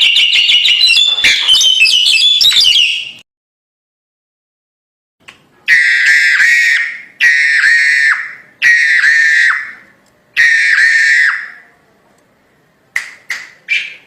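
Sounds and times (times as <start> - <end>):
bird giving harsh screeching calls: 0.7 - 3.0.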